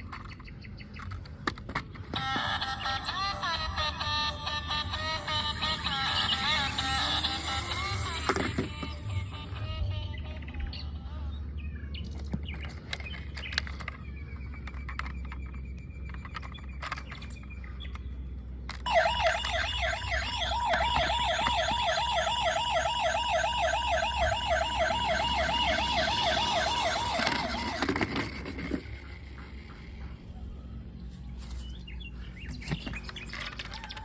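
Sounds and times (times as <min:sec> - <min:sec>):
plastic toys clicking and rattling: 0:00.0 - 0:09.1, 0:12.0 - 0:18.0, 0:25.8 - 0:29.6, 0:32.7 - 0:34.0
toy siren warbling wail: 0:02.1 - 0:10.7, 0:18.9 - 0:28.8.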